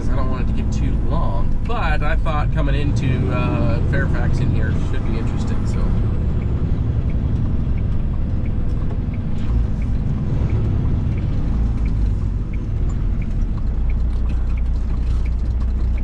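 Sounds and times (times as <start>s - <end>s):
diesel engine running: 0.0s - 16.0s
road and tyre rumble: 0.0s - 16.0s
faint regular tick: 6.2s - 16.0s.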